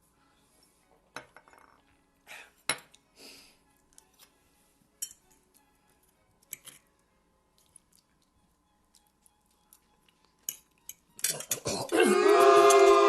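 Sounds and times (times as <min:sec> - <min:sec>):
cutlery clinking on plates: 0:10.4 - 0:11.7.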